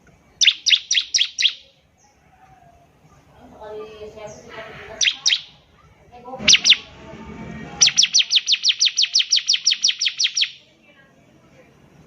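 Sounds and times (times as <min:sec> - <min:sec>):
soft low bird chatter: 0:00.0 - 0:12.0
bird fast even trill: 0:00.4 - 0:01.6, 0:05.0 - 0:05.6, 0:06.4 - 0:06.9, 0:07.8 - 0:10.6
bird sharp downslurred notes: 0:00.4 - 0:01.6, 0:04.9 - 0:05.6, 0:06.4 - 0:06.9, 0:07.8 - 0:10.6.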